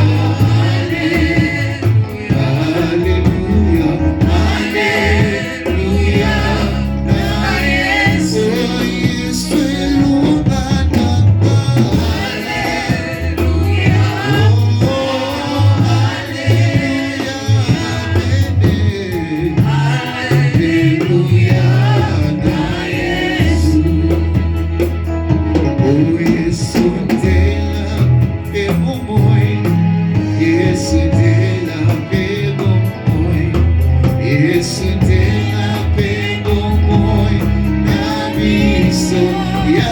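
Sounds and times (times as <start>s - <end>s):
band with heavy bass line: 0.0s - 39.9s
voices singing gospel: 0.0s - 39.9s.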